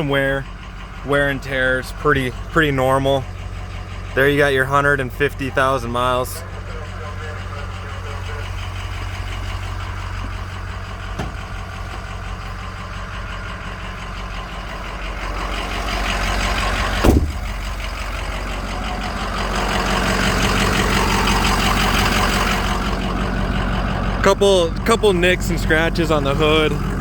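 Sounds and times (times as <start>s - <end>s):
diesel engine idling: 0.0s - 27.0s
loud thump: 11.2s - 11.6s, 17.0s - 17.7s.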